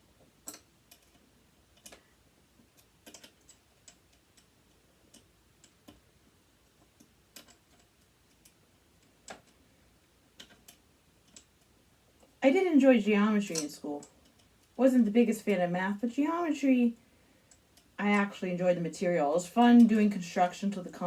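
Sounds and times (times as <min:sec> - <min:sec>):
metal parts and tools clicking: 0:00.4 - 0:06.0, 0:06.6 - 0:09.6, 0:10.3 - 0:12.4, 0:13.4 - 0:14.8.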